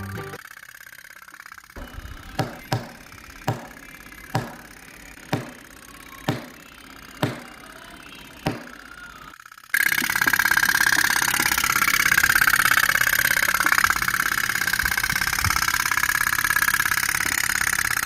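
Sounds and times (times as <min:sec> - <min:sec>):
small engine starting: 0:00.0 - 0:18.0
sharp knocks: 0:02.3 - 0:03.8, 0:04.4 - 0:04.6, 0:05.3 - 0:05.6, 0:06.3 - 0:06.6.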